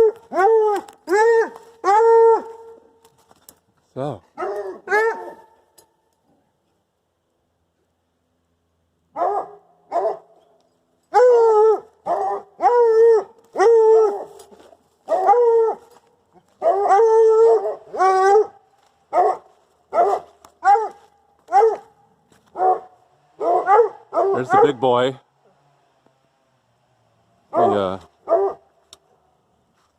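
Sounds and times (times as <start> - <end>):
dog barking: 4.4 - 5.5, 9.2 - 10.3, 11.1 - 14.3, 15.1 - 15.8, 16.6 - 21.9, 22.5 - 24.8, 27.5 - 28.7.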